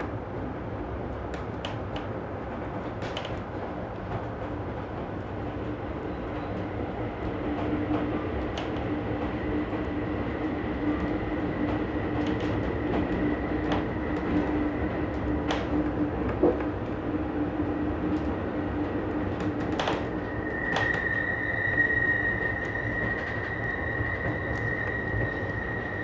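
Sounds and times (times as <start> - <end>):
passenger train rumbling: 0.0 - 26.0.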